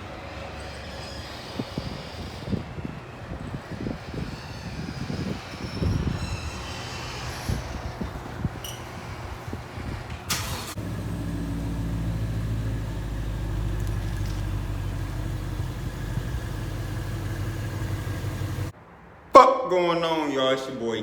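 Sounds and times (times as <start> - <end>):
motorcycle engine running rough: 10.8 - 18.7.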